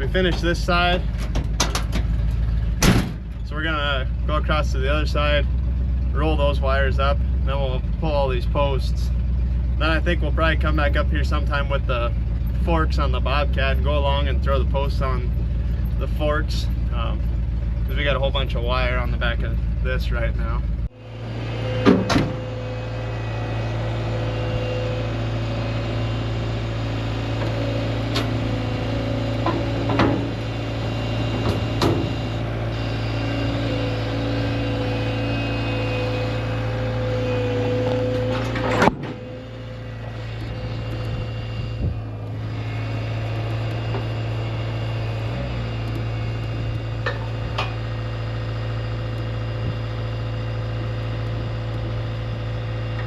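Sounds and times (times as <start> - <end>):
held whine: 0.0 - 53.0
vehicle engine running: 0.0 - 53.0
sharp clanks and knocks: 0.2 - 3.5, 21.7 - 22.6, 27.3 - 30.6, 31.2 - 32.4, 37.3 - 41.4, 45.8 - 48.0.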